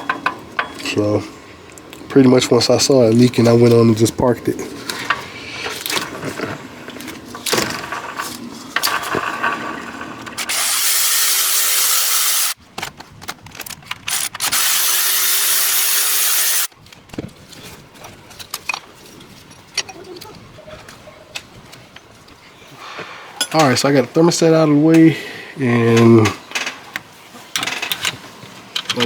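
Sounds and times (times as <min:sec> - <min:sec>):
hand tools clanking: 0:00.0 - 0:10.6
cordless power tool whirring: 0:10.3 - 0:12.6, 0:14.1 - 0:16.7.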